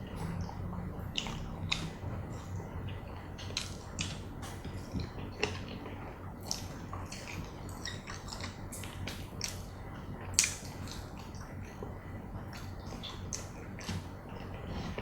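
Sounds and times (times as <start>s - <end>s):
biting and chewing crisp food: 0.0s - 15.0s.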